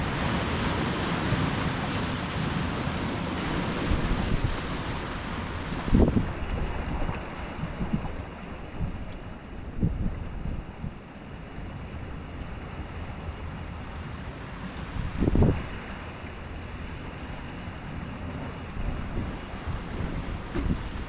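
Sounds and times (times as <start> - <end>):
wind buffeting microphone: 0.0 - 11.0, 13.8 - 16.0, 18.4 - 21.0
ocean surf washing in: 0.0 - 21.0.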